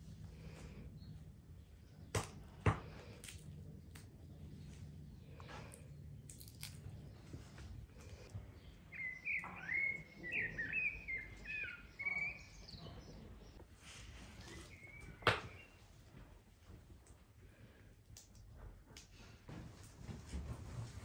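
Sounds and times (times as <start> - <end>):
songbird singing whistled notes: 8.6 - 13.6, 14.4 - 15.8.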